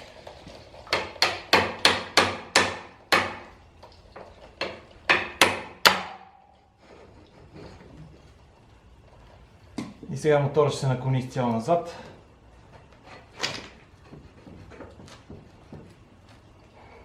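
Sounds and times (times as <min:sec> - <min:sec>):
hammer striking metal axle: 0:05.1 - 0:06.5.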